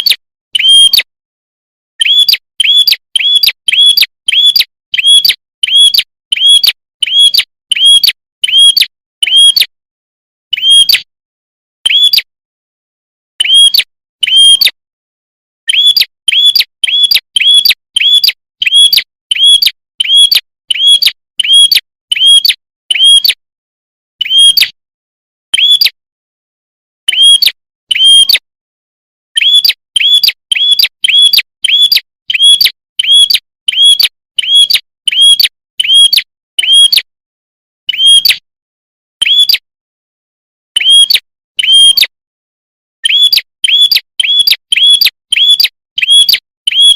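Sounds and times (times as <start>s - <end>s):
songbird chirps: 2.0s - 9.5s, 43.0s - 46.9s.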